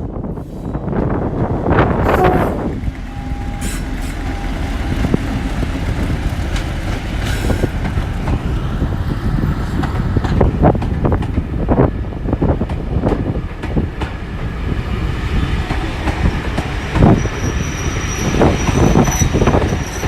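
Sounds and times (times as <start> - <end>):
diesel locomotive rumbling: 0.0 - 20.0
wind noise on microphone: 0.0 - 20.0.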